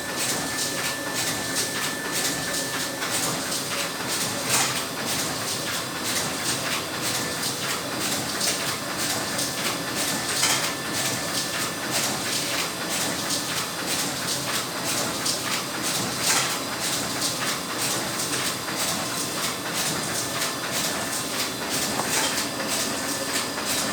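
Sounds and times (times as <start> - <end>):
laminating machine clattering: 8.0 - 23.9.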